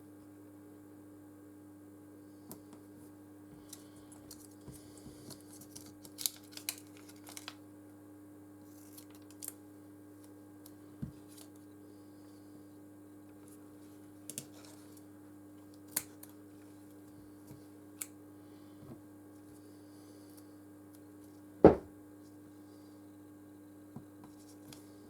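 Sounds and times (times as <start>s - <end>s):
clicks snips and rustles: 3.6s - 7.6s, 8.7s - 9.6s, 14.2s - 18.2s.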